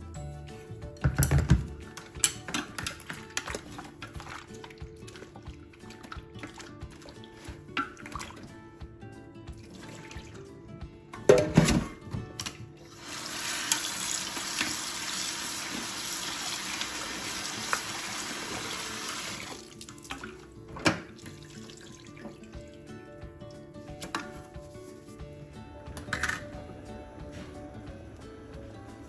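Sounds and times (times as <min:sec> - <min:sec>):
quiet background music: 0:00.0 - 0:29.0
tap water running into bowl: 0:12.4 - 0:22.8.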